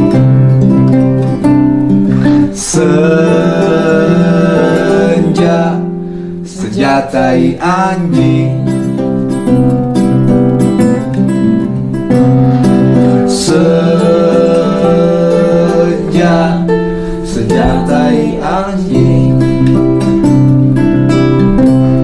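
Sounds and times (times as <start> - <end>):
acoustic guitar strumming chords: 0.0 - 22.0
person singing: 2.1 - 9.0, 12.5 - 20.5.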